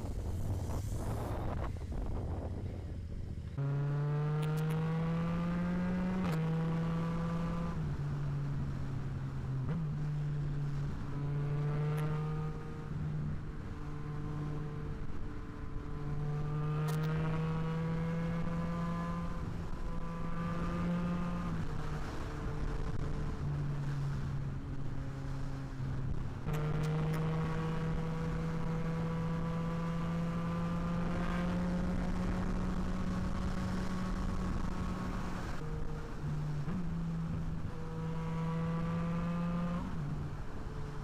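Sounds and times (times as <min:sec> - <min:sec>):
motorcycle engine revving: 0:03.6 - 0:07.8, 0:26.5 - 0:41.0.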